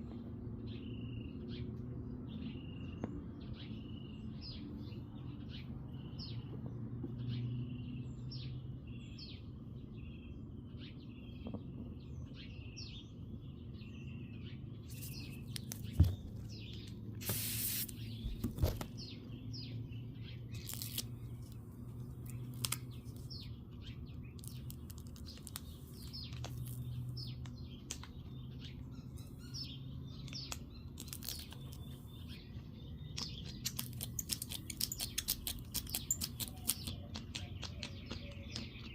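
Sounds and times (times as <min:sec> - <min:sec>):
small birds chirping: 0:00.0 - 0:38.9
brief hiss: 0:17.2 - 0:18.0.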